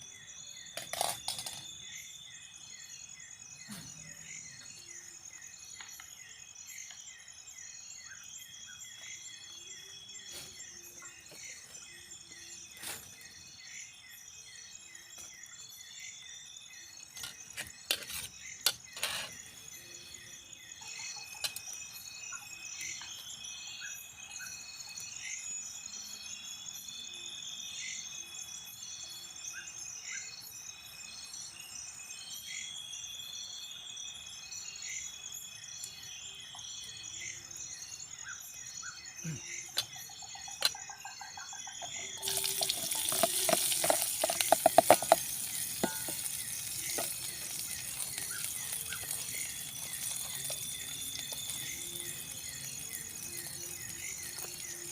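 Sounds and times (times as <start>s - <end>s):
forest insects chorus: 0.0s - 54.9s
birds calling: 39.2s - 54.9s
cooking hiss: 41.8s - 54.9s
cooking clatter: 42.0s - 52.3s.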